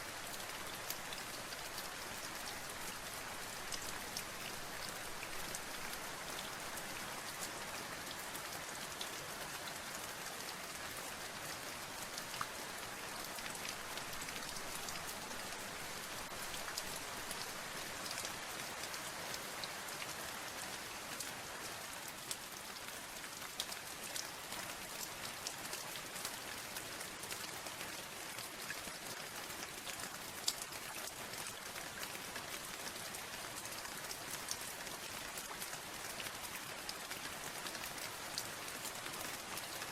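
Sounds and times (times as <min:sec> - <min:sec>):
rain drops ticking on hard surface: 0:12.0 - 0:21.3.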